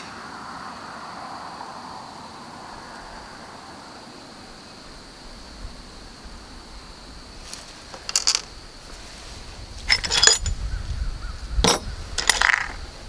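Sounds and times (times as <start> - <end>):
steel bolts and washers clinking: 7.9 - 8.5, 9.8 - 10.6, 11.6 - 12.8.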